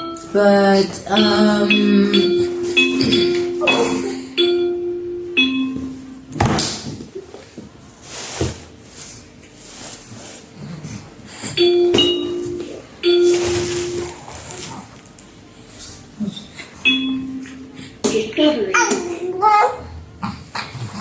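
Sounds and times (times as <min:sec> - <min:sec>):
electronic chime notes: 0:00.0 - 0:06.4, 0:11.6 - 0:14.4, 0:16.8 - 0:17.8.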